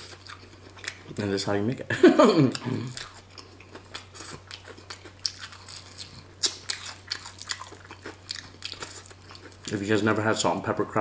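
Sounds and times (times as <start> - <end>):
crunching fried chicken: 2.6 - 10.1.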